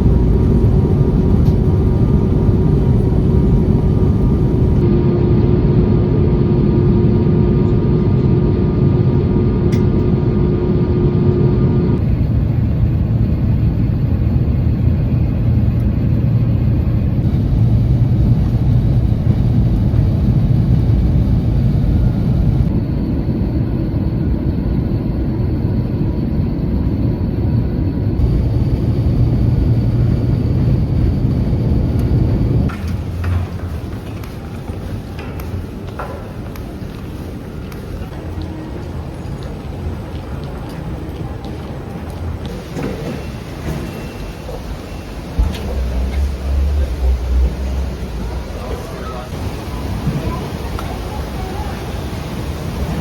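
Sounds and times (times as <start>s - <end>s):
steady hum tone: 0.0s - 39.3s
airliner cabin rumble: 0.0s - 53.0s.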